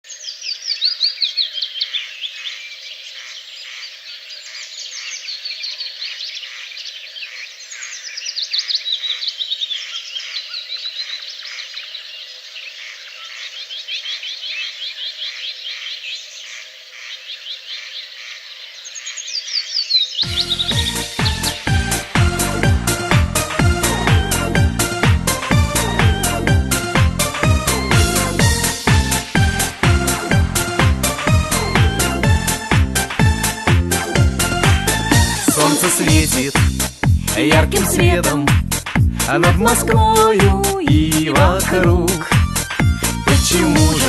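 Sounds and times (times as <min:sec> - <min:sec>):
high chirping calls: 0:18.9 - 0:22.5
music: 0:20.3 - 0:44.0.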